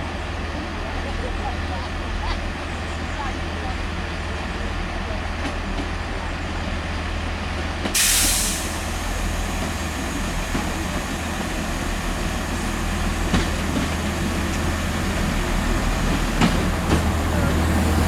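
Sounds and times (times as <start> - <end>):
diesel train engine humming: 0.0 - 18.0
compressed air hiss: 8.0 - 9.2.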